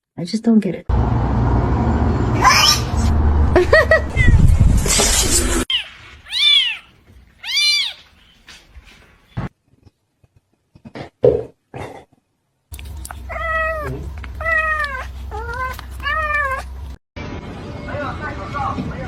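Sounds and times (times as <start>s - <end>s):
cat meowing: 5.7s - 8.1s, 13.3s - 16.7s
low background hum: 12.7s - 17.0s.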